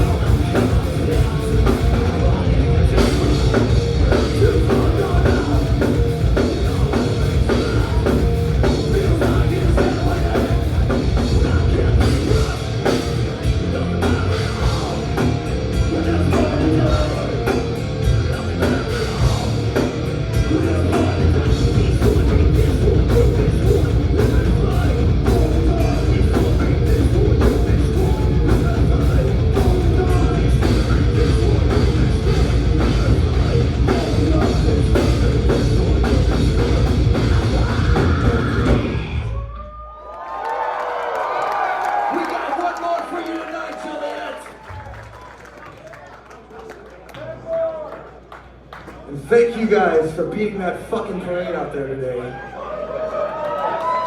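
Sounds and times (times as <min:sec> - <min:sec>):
thrash metal band playing: 0:00.0 - 0:39.3.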